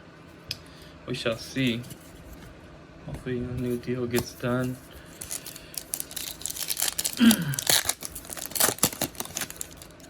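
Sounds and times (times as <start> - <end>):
wrapper crinkling: 4.6 - 10.0.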